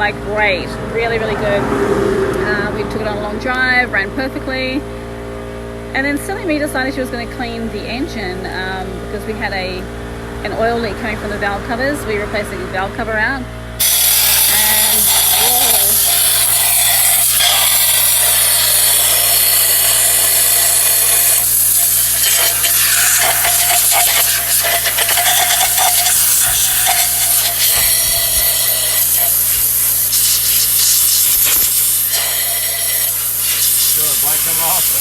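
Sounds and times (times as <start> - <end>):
compressed air hissing: 13.8 - 35.0.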